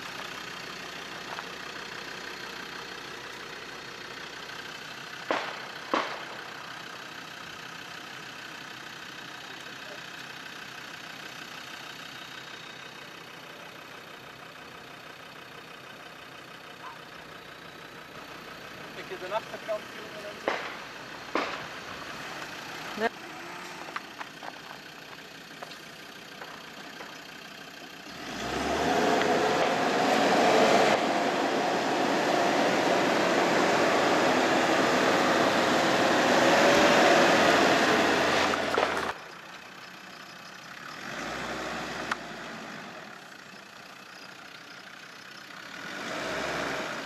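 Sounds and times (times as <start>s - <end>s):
car engine revving hard: 28.1s - 39.1s, 41.0s - 43.1s, 45.7s - 47.0s.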